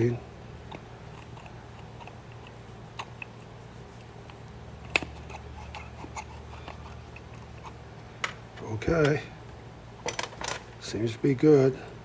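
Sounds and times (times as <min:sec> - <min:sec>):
low steady hum: 0:00.0 - 0:12.0
metal parts clicking and tapping: 0:10.0 - 0:10.7.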